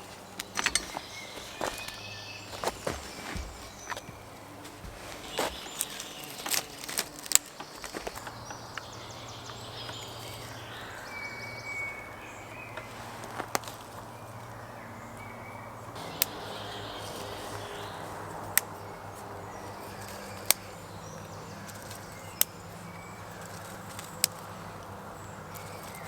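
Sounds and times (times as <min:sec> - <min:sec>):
outdoor background noise: 0:00.0 - 0:26.0
sharp clicks and knocks: 0:00.4 - 0:02.0.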